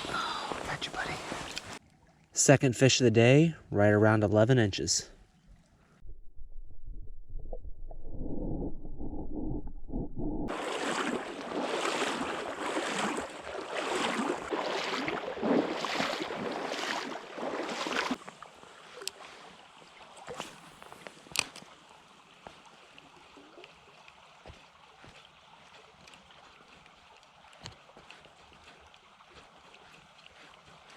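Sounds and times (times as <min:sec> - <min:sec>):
creek water splashing and sloshing: 0:00.0 - 0:02.5, 0:10.5 - 0:30.9.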